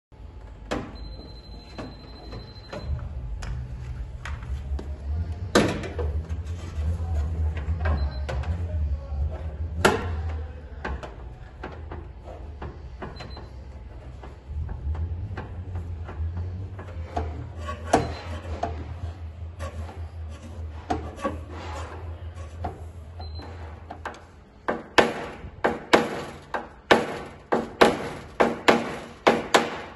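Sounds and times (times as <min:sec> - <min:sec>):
low steady hum: 0:00.2 - 0:28.8
tools scraping car body panel: 0:09.4 - 0:29.9.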